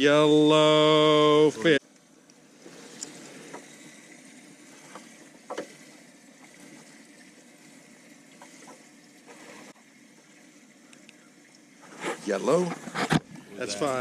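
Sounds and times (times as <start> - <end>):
faint water sloshing: 0.2 - 14.0
knocks and clicks against boat: 4.8 - 5.8.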